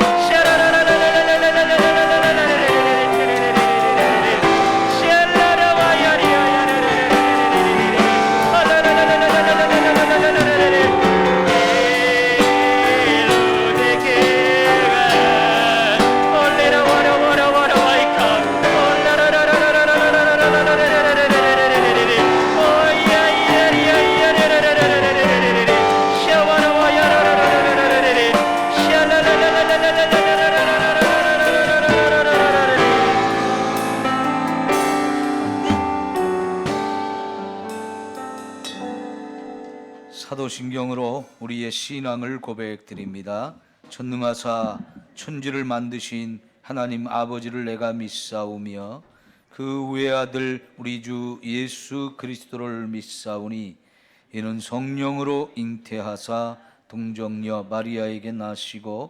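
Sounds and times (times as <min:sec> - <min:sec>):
person singing wavering melody: 0:00.0 - 0:40.4
piano chords: 0:00.0 - 0:40.5.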